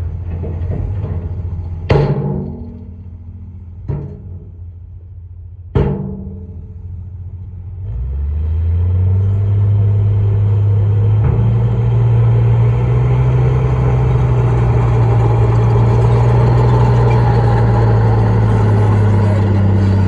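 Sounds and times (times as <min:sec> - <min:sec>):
heavy diesel engine: 0:00.0 - 0:20.0
loud metallic clanks: 0:00.2 - 0:04.8, 0:05.8 - 0:06.9, 0:11.2 - 0:20.0.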